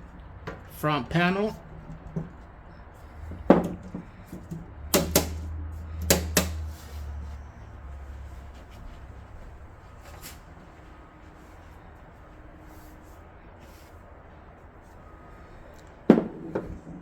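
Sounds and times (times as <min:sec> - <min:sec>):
panel clips snapping into place: 0:06.0 - 0:06.6.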